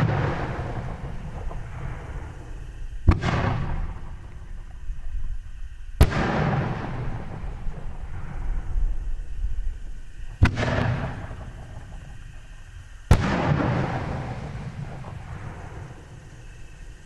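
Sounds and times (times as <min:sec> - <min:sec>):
trailing rush of fireworks: 0:00.0 - 0:17.0
firework shells banging: 0:10.2 - 0:16.8.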